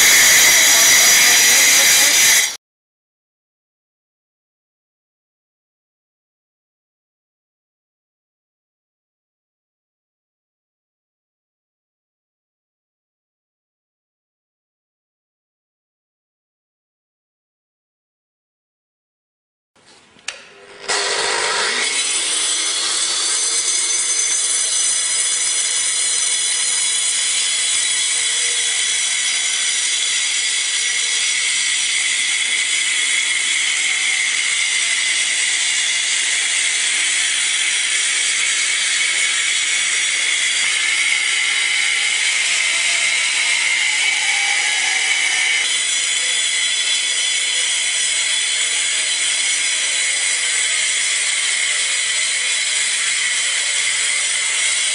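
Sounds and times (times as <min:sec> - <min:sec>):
wall chaser whining and grinding: 0:00.0 - 0:02.6, 0:20.3 - 0:54.9.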